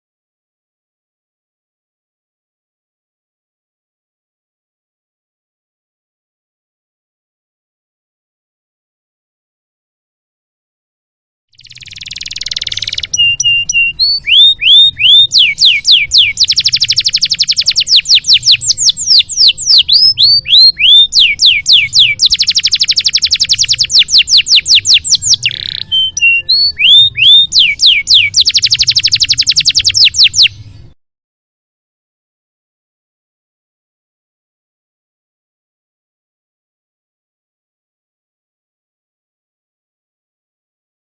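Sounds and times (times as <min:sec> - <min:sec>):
canary singing: 0:11.6 - 0:31.0.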